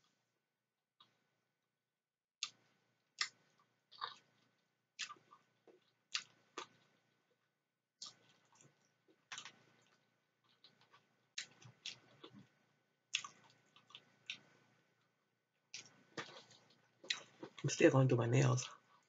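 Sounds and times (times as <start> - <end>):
chewing and wet mouth sounds: 3.2 - 7.0, 8.0 - 14.7, 15.7 - 17.6.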